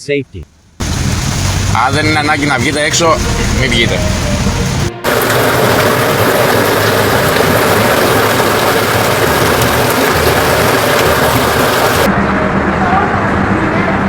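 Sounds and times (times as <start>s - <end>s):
faint low engine hum: 0.0s - 14.0s
heavy rain: 0.8s - 12.1s
rushing floodwater: 0.8s - 12.1s.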